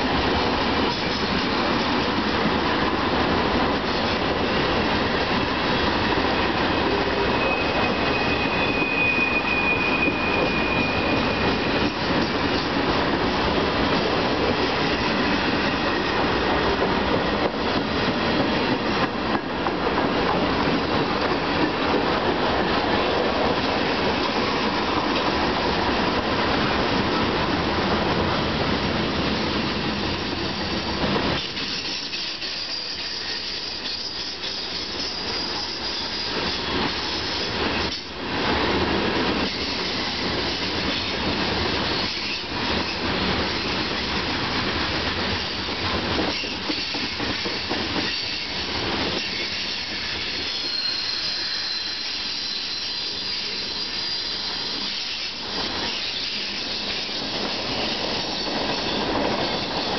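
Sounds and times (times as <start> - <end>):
freight train wheels clattering: 0.0 - 59.9
high wheel squeal: 6.2 - 12.6, 31.4 - 38.0, 46.3 - 59.9.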